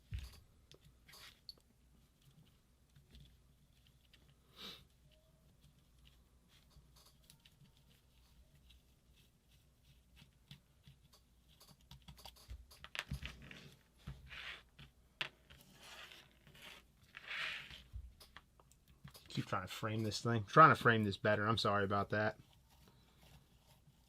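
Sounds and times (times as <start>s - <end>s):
small parts and tools clicking: 6.6s - 7.7s, 11.0s - 13.4s, 18.0s - 20.2s.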